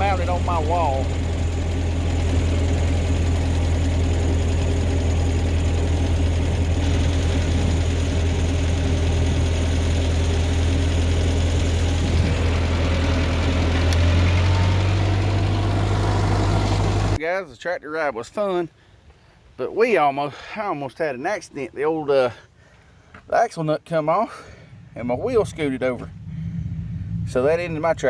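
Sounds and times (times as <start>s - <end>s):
tractor engine droning: 0.0s - 17.2s, 24.6s - 28.0s.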